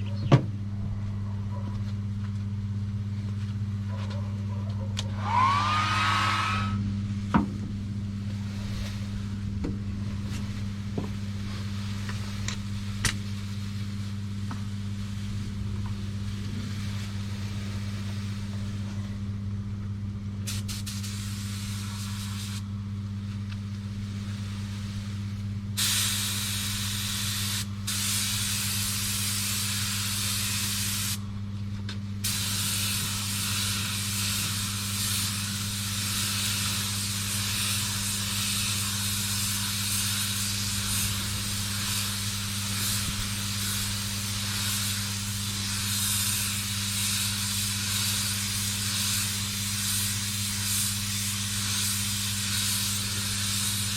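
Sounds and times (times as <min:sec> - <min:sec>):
low motor hum: 0:00.0 - 0:29.1
spraying hiss: 0:20.5 - 0:22.6, 0:24.0 - 0:31.2, 0:32.2 - 0:53.9.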